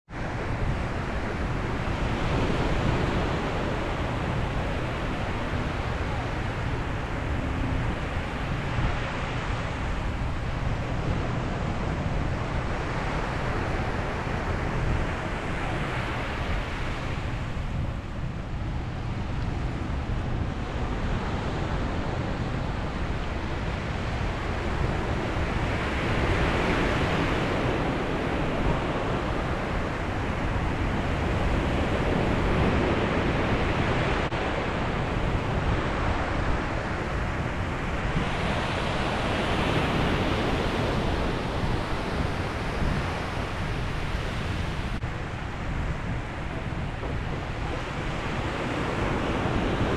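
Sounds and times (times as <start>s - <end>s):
wind rumble on microphone: 0.1s - 49.9s
sea waves breaking on beach: 23.4s - 49.9s.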